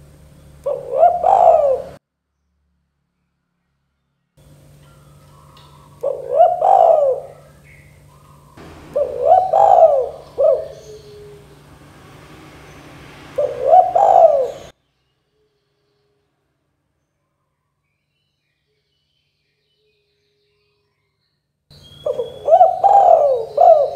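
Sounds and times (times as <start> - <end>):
dove cooing: 0.0 - 2.0, 4.9 - 11.9, 13.3 - 14.7, 21.9 - 23.9.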